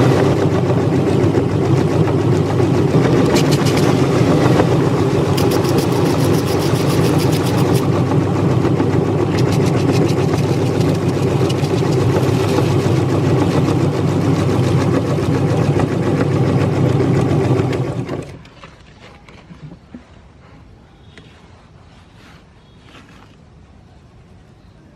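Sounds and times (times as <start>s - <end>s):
meat grinder motor running: 0.0s - 18.4s
cookie crackling in grinder: 0.0s - 18.5s.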